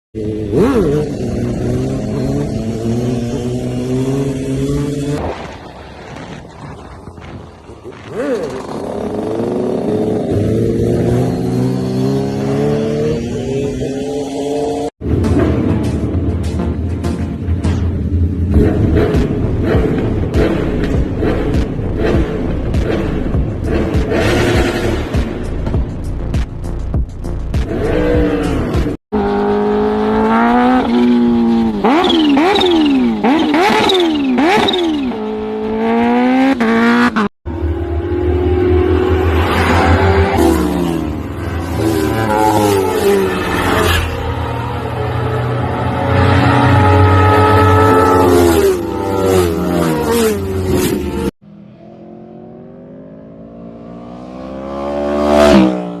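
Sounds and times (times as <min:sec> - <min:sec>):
motorcycle engine revving: 0:00.2 - 0:26.1, 0:27.5 - 0:56.0
motorcycle passing by: 0:35.6 - 0:56.0.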